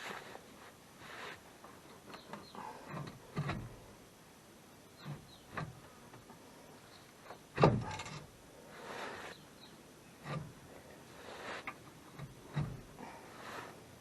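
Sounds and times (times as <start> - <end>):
knocks and clunks: 2.0 - 3.9, 5.0 - 6.4, 7.2 - 8.3, 10.2 - 10.7, 11.6 - 13.2.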